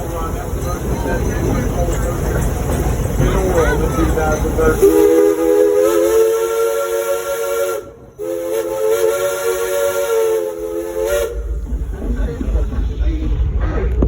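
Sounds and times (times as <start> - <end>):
steam locomotive chime whistle: 4.3 - 11.5.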